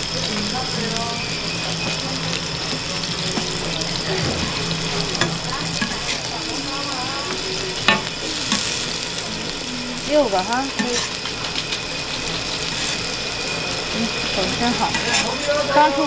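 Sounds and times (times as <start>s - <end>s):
dumplings sizzling in oil: 0.0s - 16.0s
metal spatula scraping clicks: 10.8s - 11.9s, 14.9s - 15.4s.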